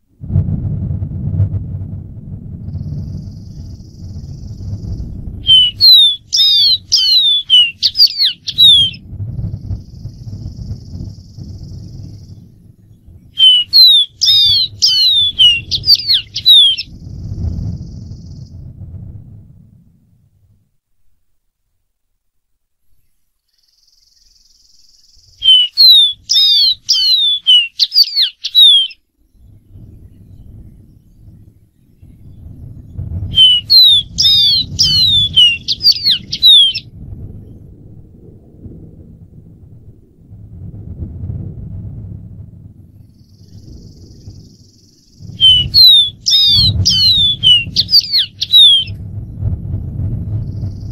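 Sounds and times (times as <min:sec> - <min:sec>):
low rumble: 0:00.0 - 0:21.2, 0:29.2 - 0:50.9
bird singing whistled notes: 0:02.7 - 0:18.6, 0:23.0 - 0:36.9, 0:43.0 - 0:49.0, 0:50.4 - 0:50.9.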